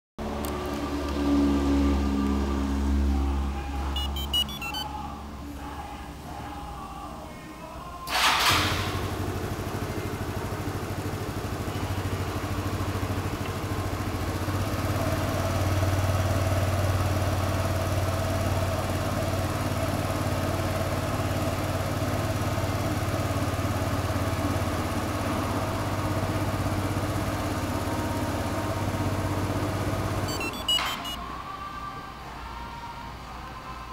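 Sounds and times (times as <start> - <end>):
scooter engine cranking: 8.1 - 9.8
scooter engine idling: 8.1 - 31.2.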